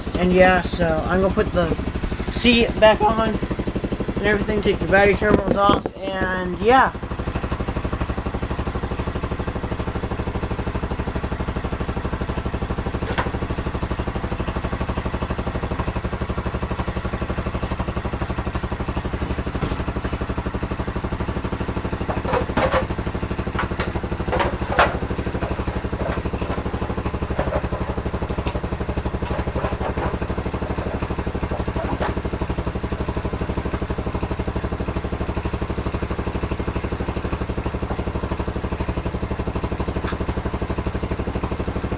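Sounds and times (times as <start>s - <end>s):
pit bike engine idling: 0.0s - 41.9s
clanks and knocks: 4.6s - 6.4s, 13.0s - 13.4s, 22.0s - 32.3s.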